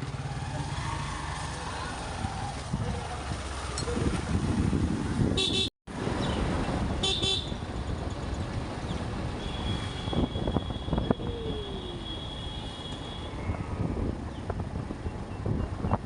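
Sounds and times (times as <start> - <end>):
motorbike engine and wind rumble: 0.0 - 16.0
vehicle horn toot: 5.4 - 5.7, 7.0 - 7.6, 9.4 - 11.2, 11.8 - 13.4.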